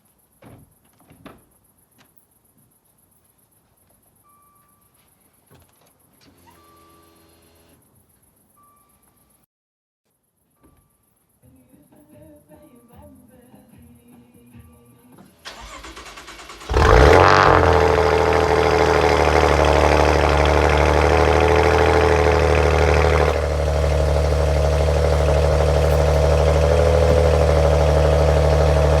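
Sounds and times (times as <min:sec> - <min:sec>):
starter motor cranking: 0:15.5 - 0:29.0
car engine revving and idling: 0:15.6 - 0:29.0.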